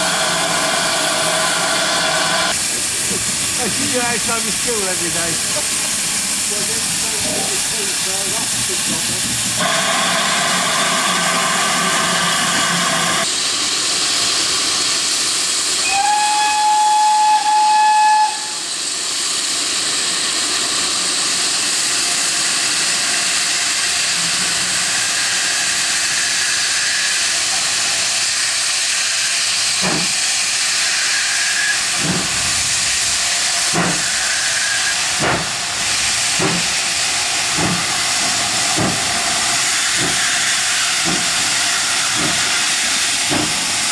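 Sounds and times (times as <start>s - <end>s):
steam hissing: 0.0s - 43.9s
locomotive whistle: 15.8s - 18.7s, 30.9s - 31.9s.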